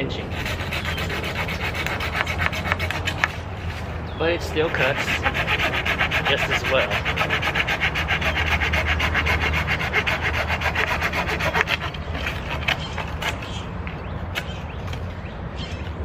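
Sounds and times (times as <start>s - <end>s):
hand saw cutting wood: 0.3s - 3.8s, 4.4s - 13.6s.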